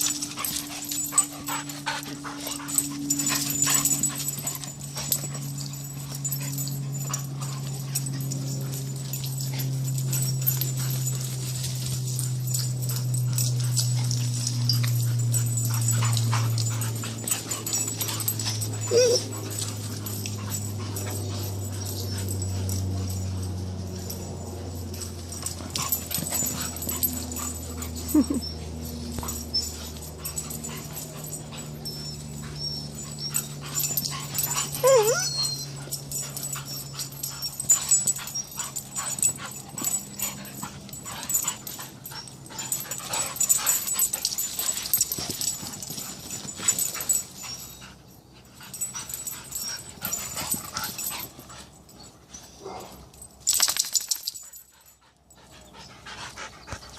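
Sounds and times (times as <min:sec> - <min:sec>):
dog whimpering: 0:18.6 - 0:19.6, 0:27.7 - 0:30.0, 0:34.3 - 0:35.8.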